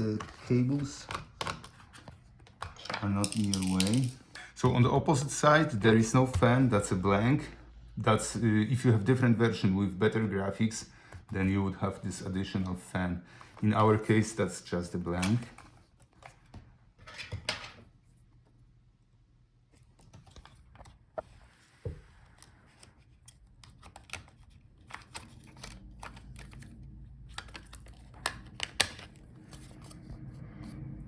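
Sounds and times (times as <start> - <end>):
small laptop parts clicking: 23.1 - 29.2.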